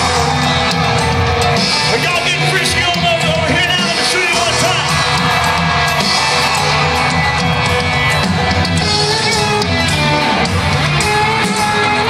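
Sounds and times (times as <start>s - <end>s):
country-rock band playing: 0.0s - 12.0s
crowd shouting: 0.0s - 12.0s
drum kit beat: 0.0s - 12.0s
electric guitar: 3.8s - 12.0s.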